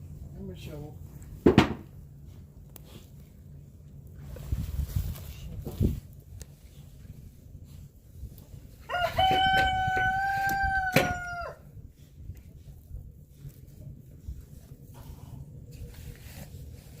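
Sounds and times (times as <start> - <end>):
rooster crowing: 8.8 - 11.7.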